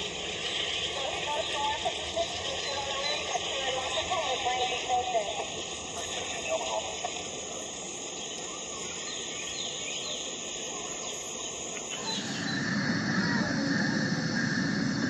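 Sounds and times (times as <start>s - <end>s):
faint chirps: 0.0s - 15.0s
steady hiss: 0.0s - 15.0s
train rumble: 0.0s - 15.0s
steady squeal: 11.9s - 15.0s.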